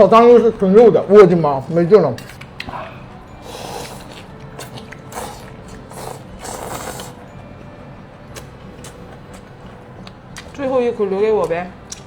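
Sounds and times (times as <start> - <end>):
clicks of teeth or utensils: 2.2 - 2.8
chewing and slurping: 2.2 - 7.4, 8.3 - 10.6.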